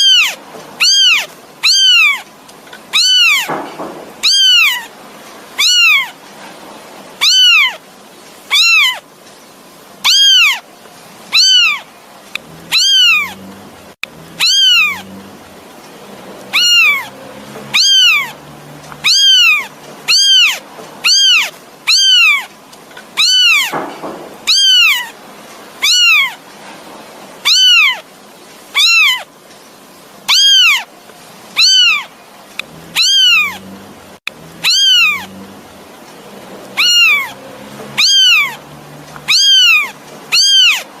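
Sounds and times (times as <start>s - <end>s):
kitten mewing: 0.0s - 2.3s, 2.9s - 3.6s, 4.2s - 4.9s, 5.6s - 6.2s, 7.2s - 7.8s, 8.5s - 9.0s, 10.0s - 10.6s, 11.3s - 13.4s, 14.3s - 15.2s, 16.5s - 18.4s, 19.0s - 22.5s, 23.2s - 25.2s, 25.8s - 26.4s, 27.4s - 28.1s, 28.7s - 29.3s, 30.3s - 30.9s, 31.6s - 33.7s, 34.6s - 35.4s, 36.7s - 38.6s, 39.2s - 40.9s.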